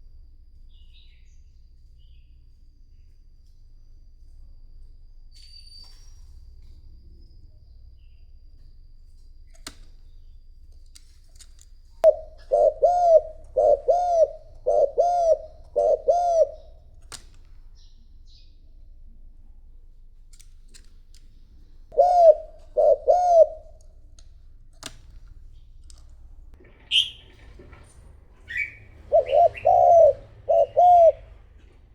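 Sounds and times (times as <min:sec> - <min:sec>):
dove cooing: 0:12.0 - 0:17.2, 0:21.9 - 0:24.2, 0:26.8 - 0:31.9.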